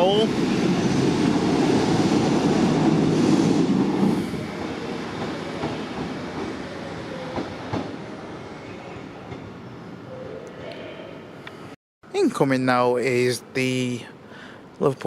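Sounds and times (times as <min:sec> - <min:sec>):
diesel train rumble: 0:00.0 - 0:10.0.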